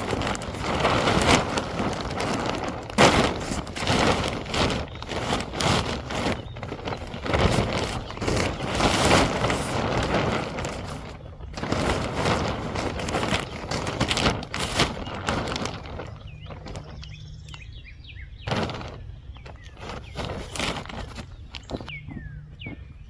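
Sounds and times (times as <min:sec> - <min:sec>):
rough rustling and scuffing: 0:00.0 - 0:23.0
bird chirping: 0:12.8 - 0:23.0.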